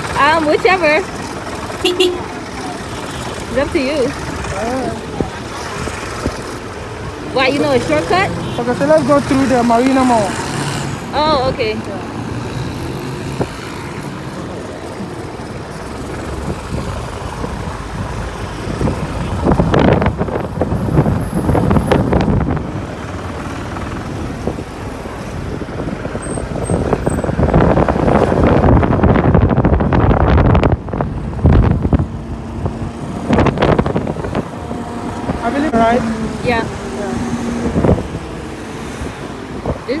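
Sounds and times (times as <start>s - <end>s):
motorcycle engine: 0.0s - 40.0s
road traffic: 0.0s - 40.0s.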